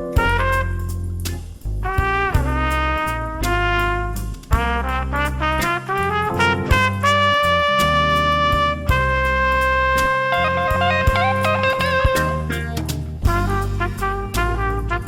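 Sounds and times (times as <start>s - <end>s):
bass and drums: 0.0s - 15.0s
trumpet playing jazz melody: 0.0s - 15.0s.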